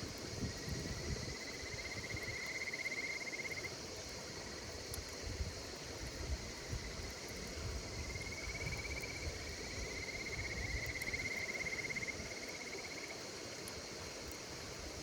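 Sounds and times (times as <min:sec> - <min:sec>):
high-pitched insect chorus: 0:00.0 - 0:15.0
insect pulsed trill: 0:00.9 - 0:03.7, 0:08.0 - 0:13.2.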